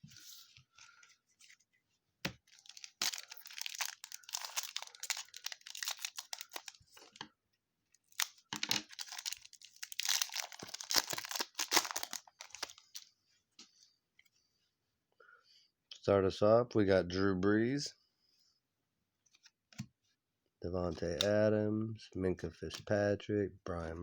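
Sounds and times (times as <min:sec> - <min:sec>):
foil wrapper crinkling and tearing: 0:02.4 - 0:06.8, 0:08.1 - 0:13.0.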